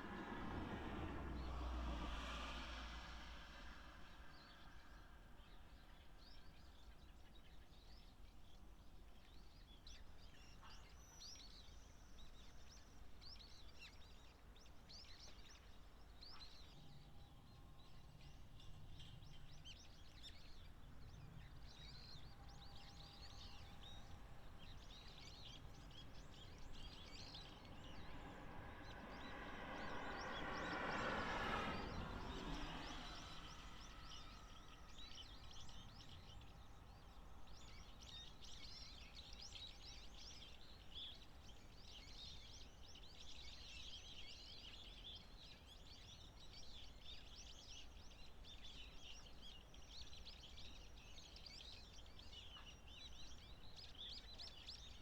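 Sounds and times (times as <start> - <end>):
vehicle passing: 0.0 - 4.9, 26.1 - 36.2.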